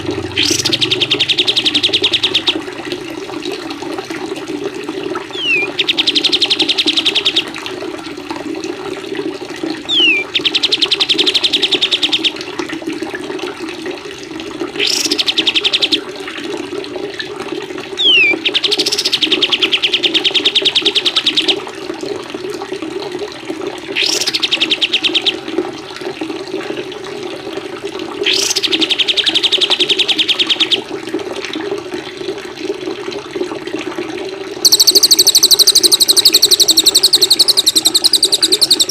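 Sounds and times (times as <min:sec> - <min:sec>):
running water: 0:00.0 - 0:38.9
songbird whistling and trilling: 0:00.4 - 0:02.6, 0:05.4 - 0:07.5, 0:09.9 - 0:12.4, 0:14.8 - 0:15.9, 0:18.0 - 0:21.5, 0:24.0 - 0:25.2, 0:28.3 - 0:30.8, 0:34.6 - 0:38.9.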